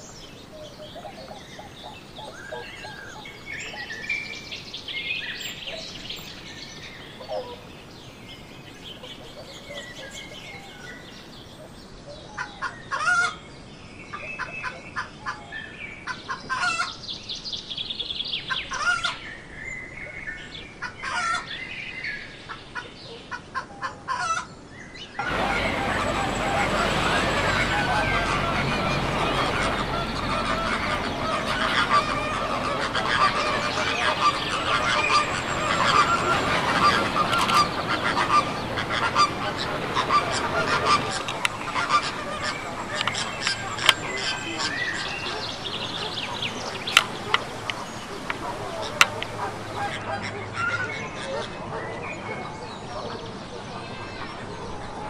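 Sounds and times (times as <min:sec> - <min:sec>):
small birds chirping: 0:00.0 - 0:12.0, 0:25.1 - 0:51.2
loud steady rushing noise: 0:25.2 - 0:50.6
hen clucking: 0:25.2 - 0:51.5.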